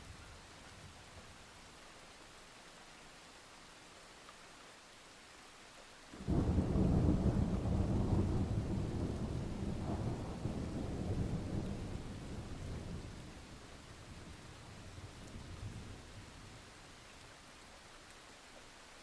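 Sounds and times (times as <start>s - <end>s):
steady rain: 0.0s - 19.0s
thunder rolling: 6.2s - 13.0s.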